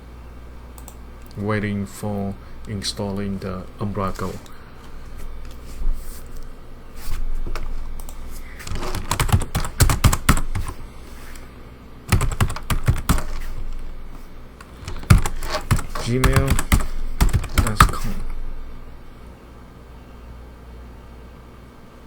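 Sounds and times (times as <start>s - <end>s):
computer keyboard typing: 7.4s - 11.4s, 12.1s - 18.4s.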